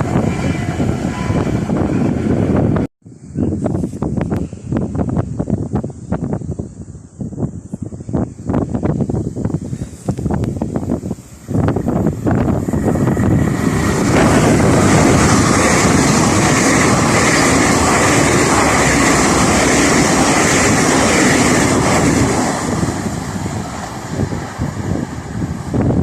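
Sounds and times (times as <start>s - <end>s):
wind buffeting microphone: 0.0s - 26.0s
train wheels on rails: 9.8s - 26.0s.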